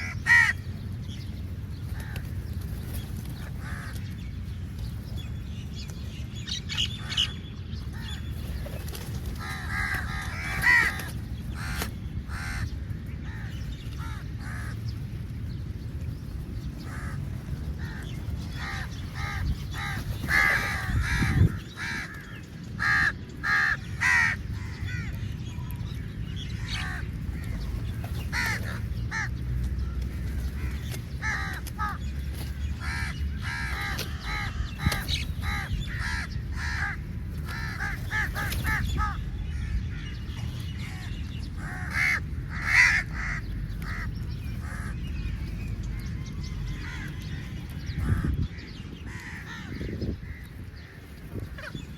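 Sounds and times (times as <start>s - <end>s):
crows cawing: 0.0s - 0.7s, 9.4s - 14.8s, 16.8s - 25.2s, 28.3s - 29.4s, 30.4s - 45.1s, 46.4s - 51.0s.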